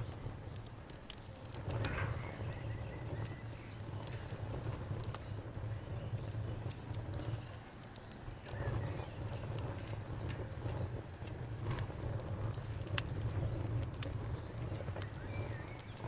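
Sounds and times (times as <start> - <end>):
crickets chirping: 0.0 - 11.4
campfire crackling and popping: 0.0 - 16.0
frogs croaking low: 0.0 - 16.0.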